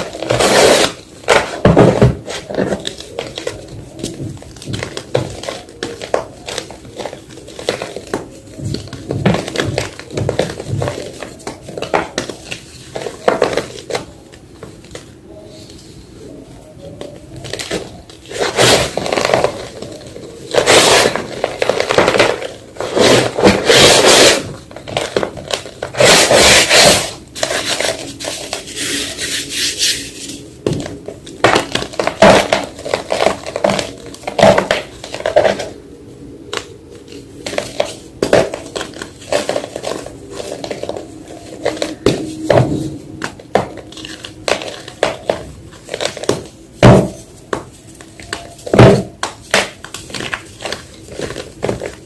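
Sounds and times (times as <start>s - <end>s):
chalk being crunched: 25.9s - 30.5s.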